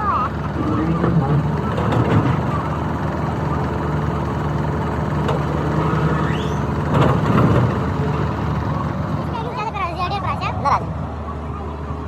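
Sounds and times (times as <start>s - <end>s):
engine idling: 0.0s - 12.0s
engine knocking: 0.3s - 9.6s.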